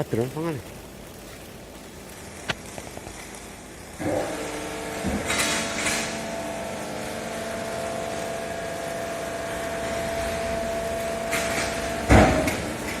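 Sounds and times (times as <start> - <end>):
hydraulic power unit humming: 3.5 - 13.0.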